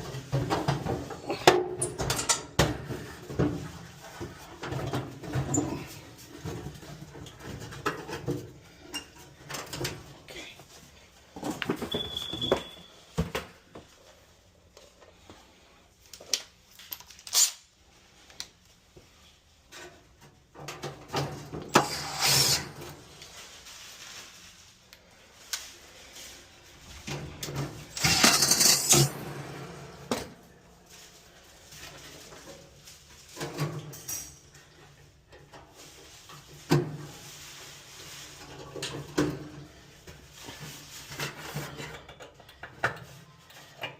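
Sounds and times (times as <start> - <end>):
metal parts clicking and clanking: 1.1 - 2.6, 16.2 - 17.6, 27.0 - 29.2.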